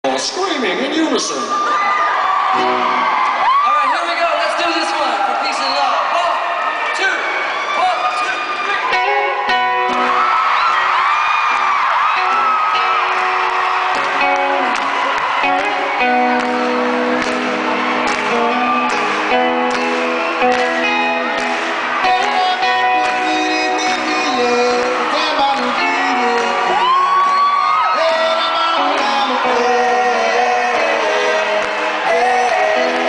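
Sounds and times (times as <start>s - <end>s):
crowd whooping and cheering: 1.2s - 33.0s
live band playing: 2.4s - 3.6s, 8.4s - 33.0s
strummed guitar: 12.2s - 26.9s.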